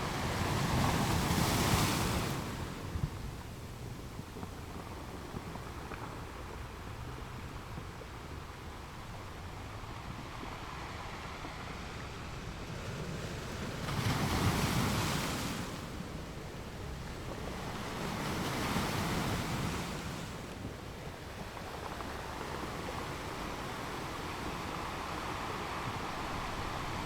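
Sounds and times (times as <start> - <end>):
ocean waves breaking on beach: 0.0 - 3.4, 9.5 - 27.0.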